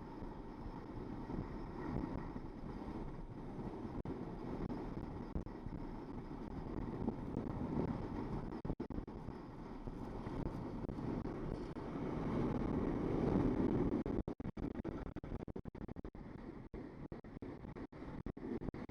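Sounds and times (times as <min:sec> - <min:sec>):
wind buffeting microphone: 0:00.0 - 0:15.1.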